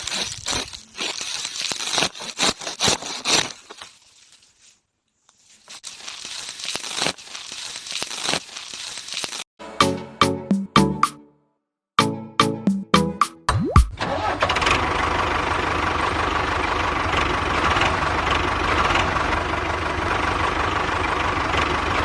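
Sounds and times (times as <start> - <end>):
rustling crinkling handling noise: 0.0 - 9.5.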